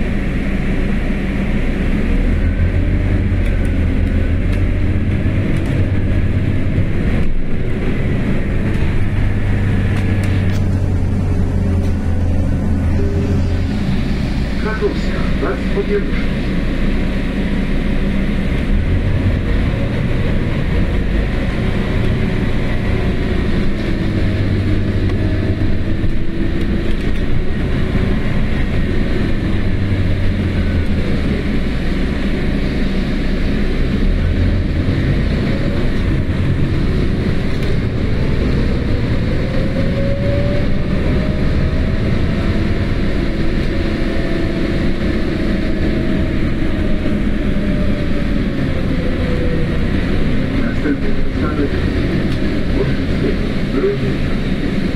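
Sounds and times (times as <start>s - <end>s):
bus engine and road rumble: 0.0s - 54.9s
drivetrain whine: 0.0s - 54.9s.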